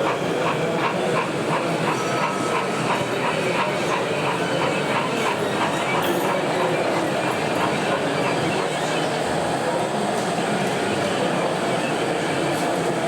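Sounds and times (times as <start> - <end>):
hall crowd hubbub: 0.0 - 13.0
model steam locomotive chuffing: 0.0 - 13.0.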